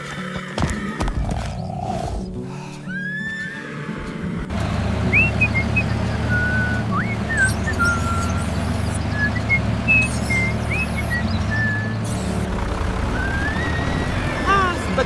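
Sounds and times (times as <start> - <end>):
low engine drone: 4.2 - 15.0
bird-like chirps and whistles: 5.1 - 12.4.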